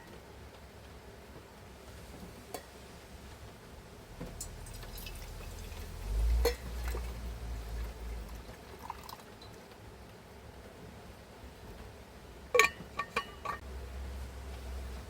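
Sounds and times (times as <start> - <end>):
liquid being poured: 4.2 - 9.6
glass and tableware clinking: 6.4 - 7.1, 12.6 - 13.6.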